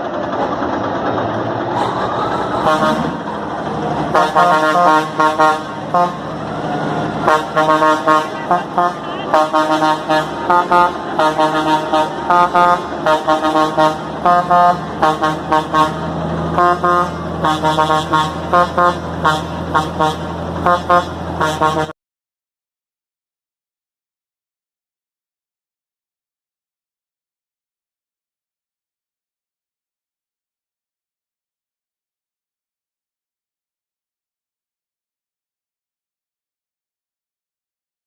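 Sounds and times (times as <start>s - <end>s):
diesel engine idling: 0.0s - 21.9s
musical air horn tune: 2.6s - 3.2s, 4.1s - 6.3s, 7.2s - 22.0s.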